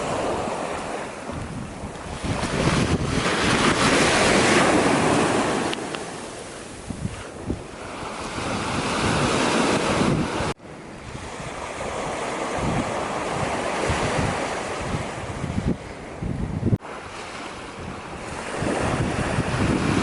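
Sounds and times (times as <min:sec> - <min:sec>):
surf washing onto shore: 0:00.0 - 0:16.2, 0:16.8 - 0:20.0
wind buffeting microphone: 0:00.0 - 0:20.0.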